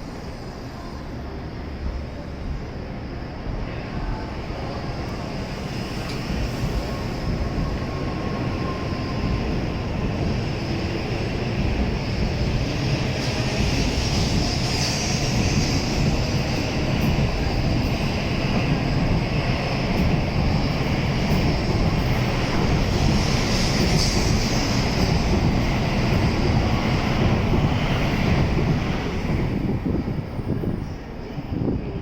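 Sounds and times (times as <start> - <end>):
train rumble with whine and hiss: 0.0 - 32.0.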